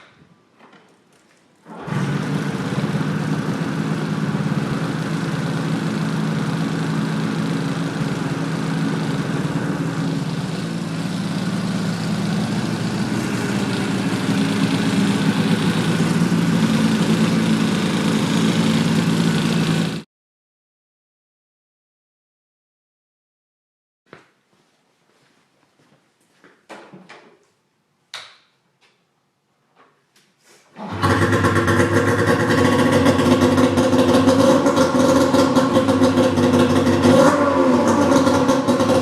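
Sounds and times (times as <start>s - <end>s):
snowmobile engine idling: 2.2s - 20.0s, 31.0s - 37.2s, 37.8s - 39.0s.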